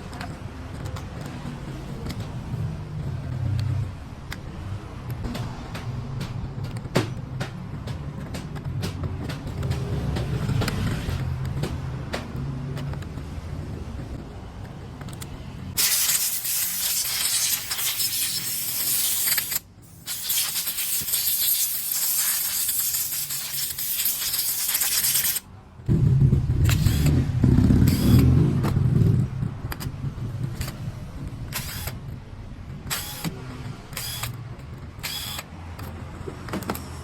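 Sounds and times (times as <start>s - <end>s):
clicks of parts being handled: 11.4s - 13.3s, 32.9s - 37.0s
spray can hissing: 15.8s - 25.4s.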